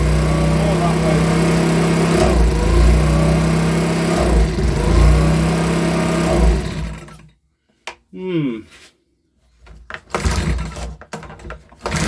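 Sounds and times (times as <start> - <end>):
leaf blower engine revving: 0.0 - 7.2.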